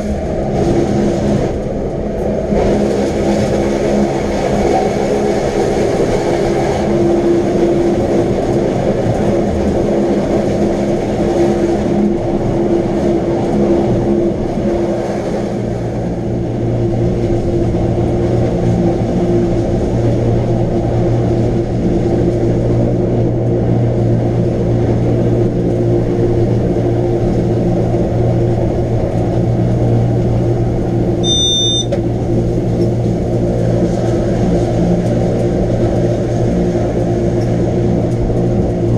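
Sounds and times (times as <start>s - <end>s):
electric rack railway train running: 0.0s - 38.9s
high electronic beep: 31.2s - 32.0s.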